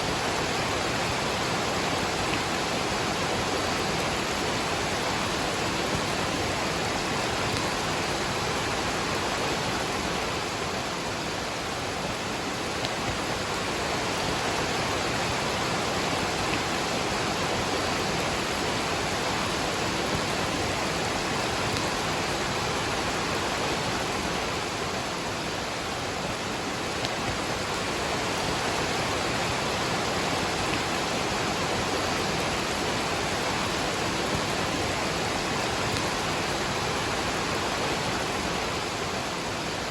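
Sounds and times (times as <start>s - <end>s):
rain falling: 0.0s - 39.9s
waterfall rushing: 0.0s - 39.9s.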